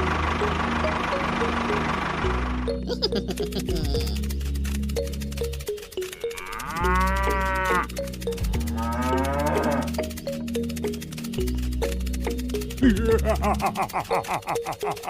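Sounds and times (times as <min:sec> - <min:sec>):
background music with beat: 0:00.0 - 0:15.0
cow mooing: 0:06.1 - 0:10.2.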